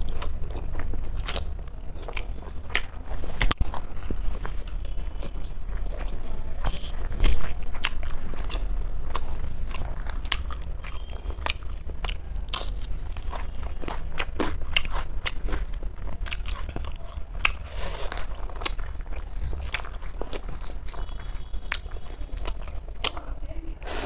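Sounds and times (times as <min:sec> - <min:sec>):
person chewing food: 0:00.0 - 0:24.0
steady low hum: 0:00.0 - 0:24.0.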